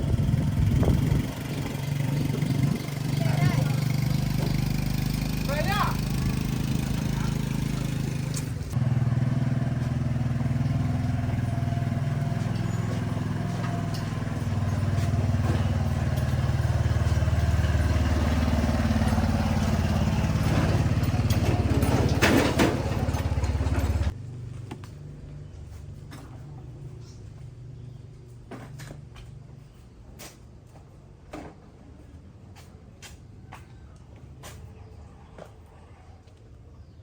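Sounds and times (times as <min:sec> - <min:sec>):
vehicle engine running: 0:00.0 - 0:28.2.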